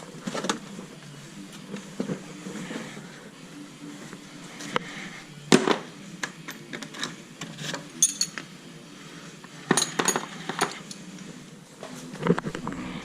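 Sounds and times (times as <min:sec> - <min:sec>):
metal tools clinking: 0:08.0 - 0:08.4.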